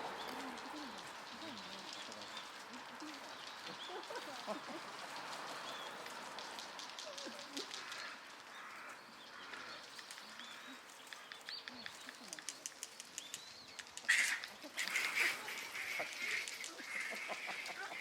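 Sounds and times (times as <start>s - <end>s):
monkeys calling harshly: 0.0s - 6.1s, 13.8s - 18.0s
small clicks: 0.2s - 18.0s.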